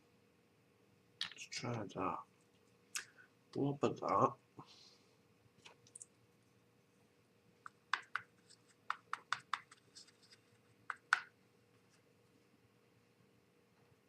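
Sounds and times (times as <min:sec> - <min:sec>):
paint brush tapping plastic part: 0:07.6 - 0:11.3.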